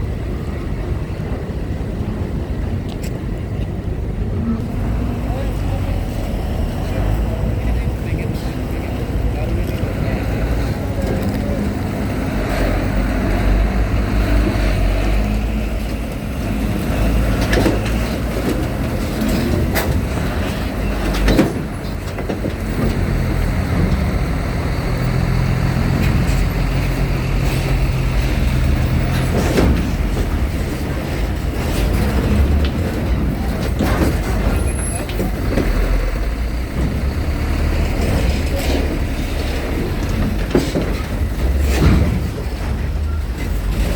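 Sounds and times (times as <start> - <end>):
truck diesel engines rumbling: 0.0 - 43.9.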